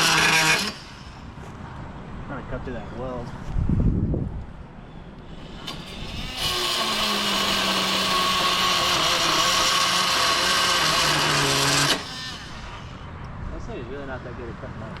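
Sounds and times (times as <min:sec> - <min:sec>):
reciprocating saw cutting metal: 0:00.0 - 0:01.3, 0:05.3 - 0:13.1.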